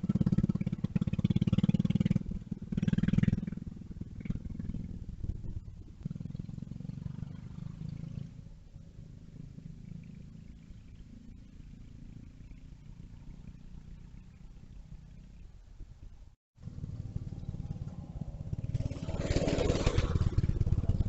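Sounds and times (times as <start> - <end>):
mini bike engine buzzing: 16.7 - 21.0.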